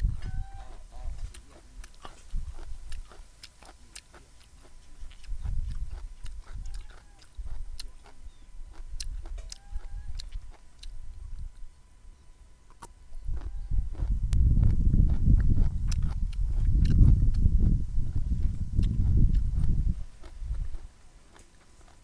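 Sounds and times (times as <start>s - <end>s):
chewing crunchy vegetables: 0.0s - 11.7s, 12.7s - 22.0s.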